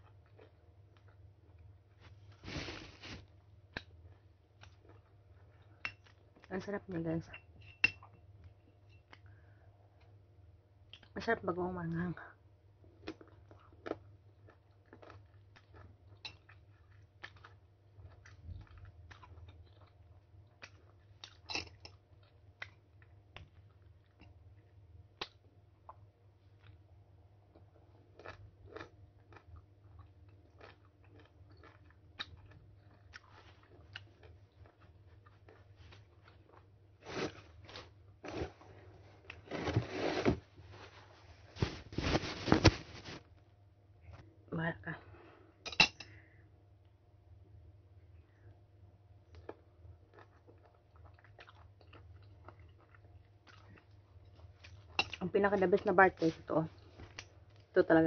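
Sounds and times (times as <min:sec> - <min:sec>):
person biting and chewing mango: 0:28.1 - 0:38.6.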